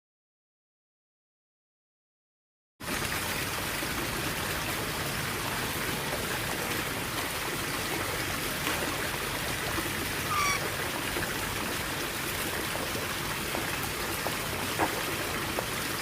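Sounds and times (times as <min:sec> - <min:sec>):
bird chirp: 0:10.3 - 0:10.6.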